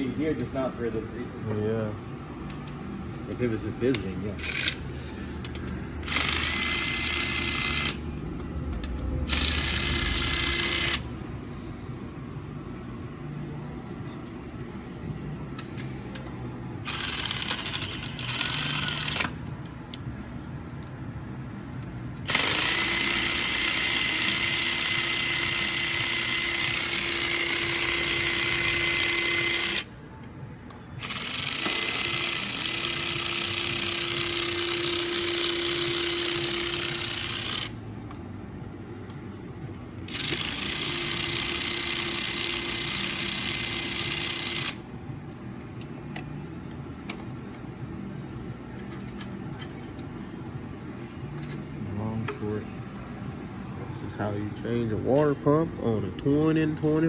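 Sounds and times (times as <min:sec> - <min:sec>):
power tool whining: 0:05.5 - 0:08.1, 0:08.8 - 0:11.1, 0:16.8 - 0:19.5, 0:22.3 - 0:29.9, 0:31.0 - 0:37.8.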